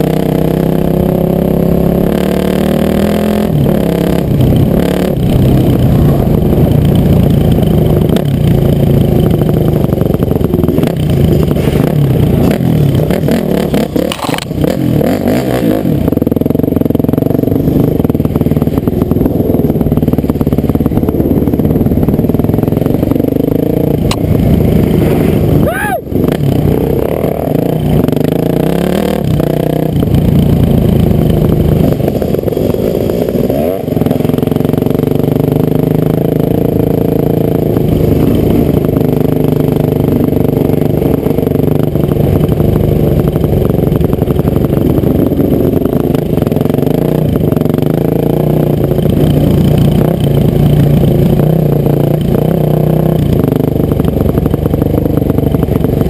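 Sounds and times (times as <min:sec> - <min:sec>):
motocross engine revving: 0:00.0 - 0:42.6.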